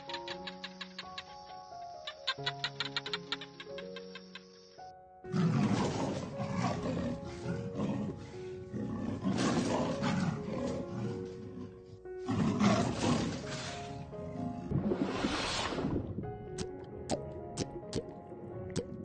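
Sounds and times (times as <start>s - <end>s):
soft background music: 0.0s - 19.0s
leopard roaring: 5.3s - 14.7s.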